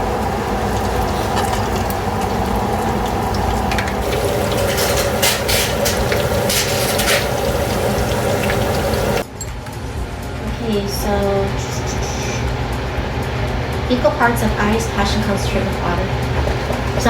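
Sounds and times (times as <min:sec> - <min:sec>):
deep frying sizzle and crackle: 0:00.0 - 0:09.2.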